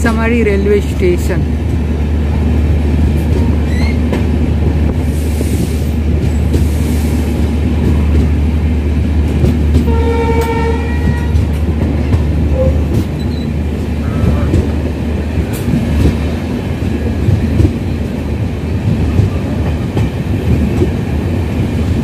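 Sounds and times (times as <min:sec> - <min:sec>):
train rumble with wheel clatter: 0:00.0 - 0:22.0
train horn: 0:09.8 - 0:11.5.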